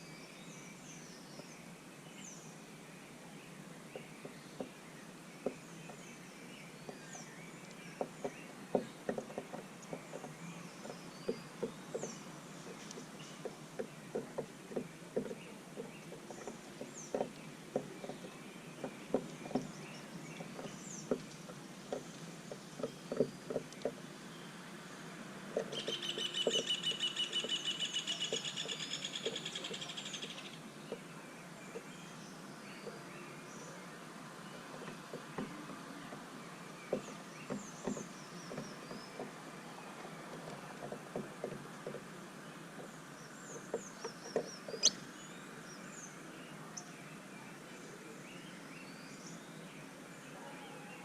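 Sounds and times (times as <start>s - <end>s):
small birds chirping: 0.0s - 51.0s
loud rapid bird trill: 25.7s - 30.6s.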